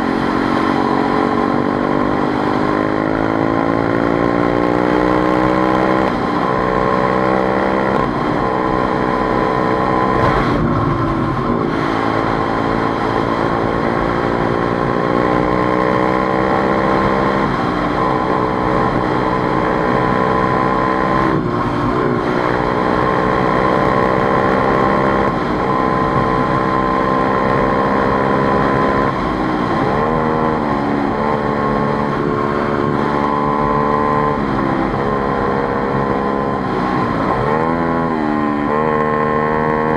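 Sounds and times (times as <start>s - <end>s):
motorcycle engine changing gears: 0.0s - 39.9s.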